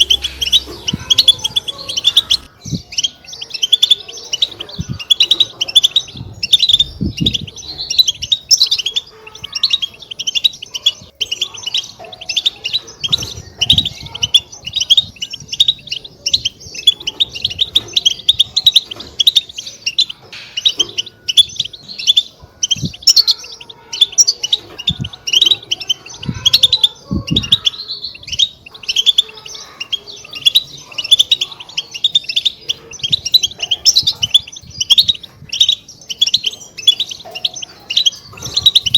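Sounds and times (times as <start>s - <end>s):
goldfinches twittering: 0.0s - 38.9s
dull low thumps: 6.1s - 8.4s.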